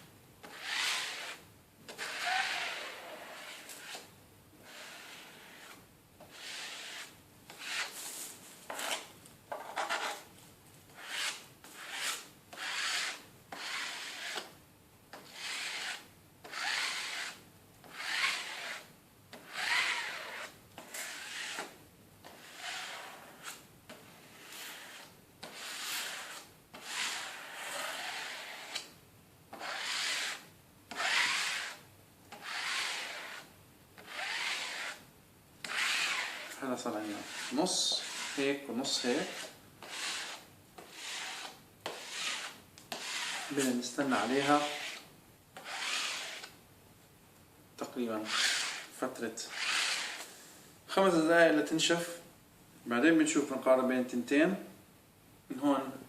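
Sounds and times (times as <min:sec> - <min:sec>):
card scraping over cardboard: 0:45.6 - 0:46.5.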